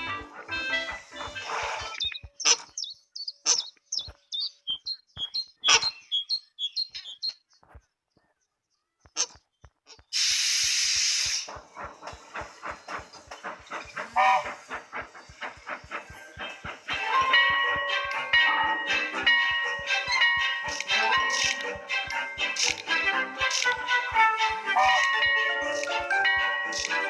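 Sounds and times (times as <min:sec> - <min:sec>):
bird-like chirps and clicks: 0:01.8 - 0:08.4, 0:20.1 - 0:21.7, 0:22.6 - 0:23.8
even clicking of train wheels: 0:10.0 - 0:27.0
loud steam hiss: 0:10.1 - 0:18.4.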